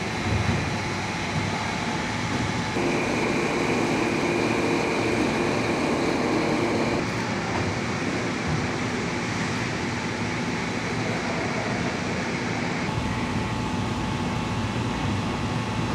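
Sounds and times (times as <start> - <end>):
industrial machinery noise: 0.0 - 15.9
humming tone: 2.8 - 7.0.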